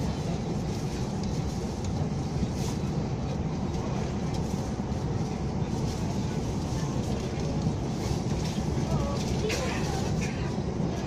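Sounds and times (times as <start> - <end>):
electric train cabin rumble: 0.0 - 11.0.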